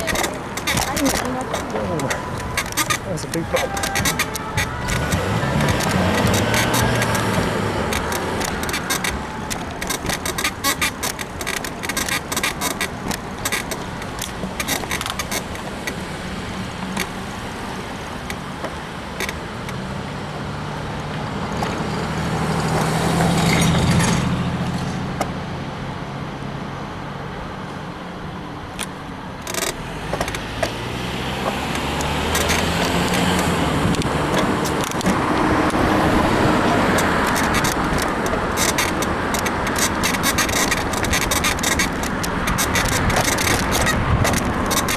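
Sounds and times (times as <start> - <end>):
bicycle clicks and rattles: 0.0 - 16.0, 28.8 - 30.8, 31.4 - 44.9
passing motor vehicle: 0.0 - 44.9
wind on microphone: 30.8 - 44.9.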